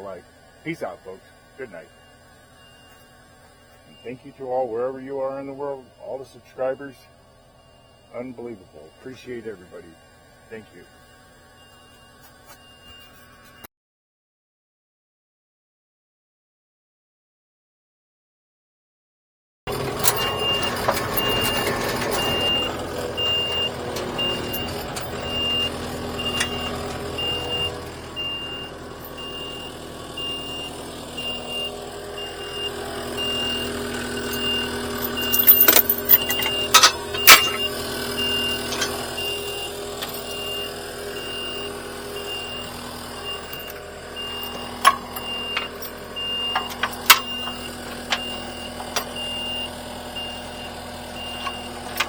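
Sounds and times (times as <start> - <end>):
backup alarm beeping: 0.0 - 13.7, 19.7 - 52.0
vehicle engine running: 0.0 - 13.7, 19.7 - 52.0
sharp metal clanks: 34.2 - 37.7.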